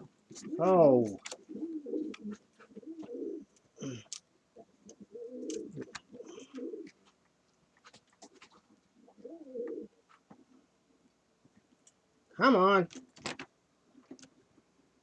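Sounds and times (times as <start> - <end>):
dove cooing: 0.3 - 7.0, 9.0 - 9.9.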